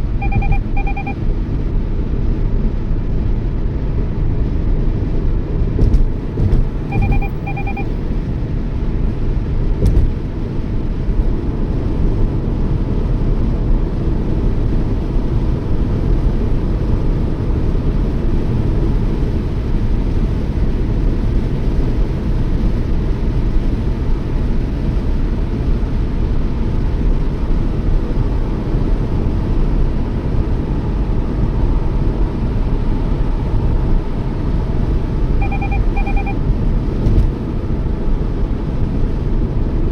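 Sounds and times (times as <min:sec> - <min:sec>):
short electronic beeps: 0:00.0 - 0:01.3, 0:06.8 - 0:08.3, 0:35.4 - 0:36.4
road and engine rumble: 0:00.0 - 0:39.9.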